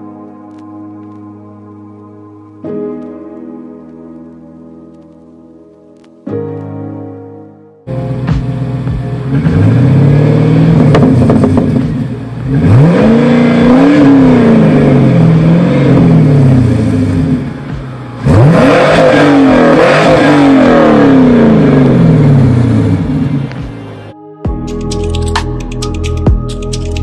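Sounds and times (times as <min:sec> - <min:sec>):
car engine revving: 0:07.9 - 0:24.0.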